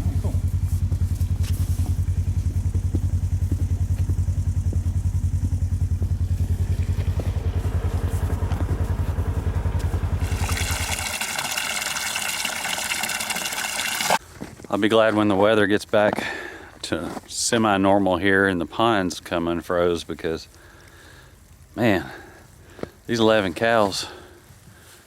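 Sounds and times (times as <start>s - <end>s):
small engine idling: 0.0s - 14.7s, 20.0s - 23.1s
water rushing into a tank: 10.2s - 14.2s.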